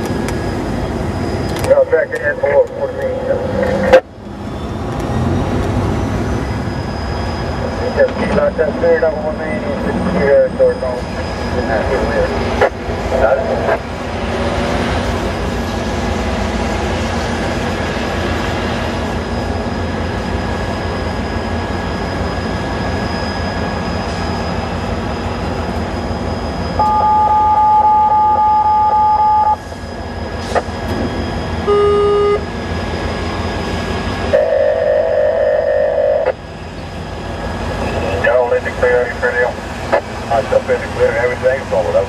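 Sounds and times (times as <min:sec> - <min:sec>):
pulsing tone: 0:19.2 - 0:37.0
radio scanner two-tone beep: 0:26.8 - 0:29.6, 0:31.7 - 0:32.4.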